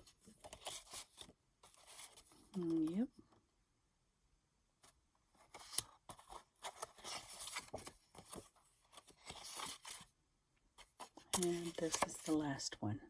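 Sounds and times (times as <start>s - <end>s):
paper cards rustling and sliding: 0.0s - 3.0s, 5.4s - 10.1s, 10.8s - 12.5s.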